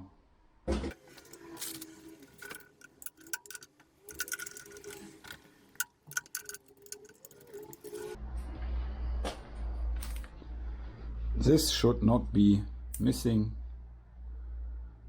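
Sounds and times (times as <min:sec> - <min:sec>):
metallic clicks of hand tools: 0:01.2 - 0:08.2.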